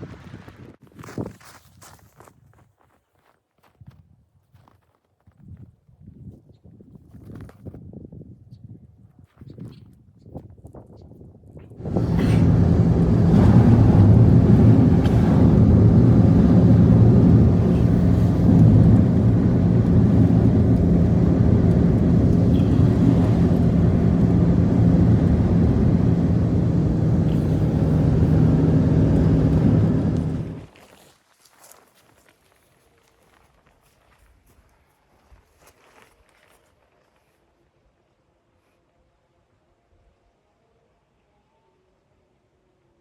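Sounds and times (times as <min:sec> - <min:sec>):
low mechanical drone: 0:11.8 - 0:30.7.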